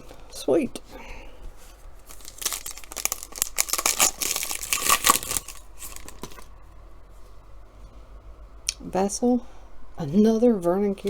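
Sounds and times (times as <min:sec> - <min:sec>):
foil wrapper tearing and crinkling: 0:02.0 - 0:06.4.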